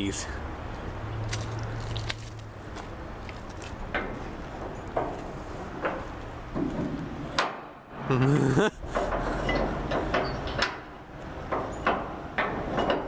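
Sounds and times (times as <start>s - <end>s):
sliding door clanking: 3.9s - 8.2s, 8.8s - 13.0s.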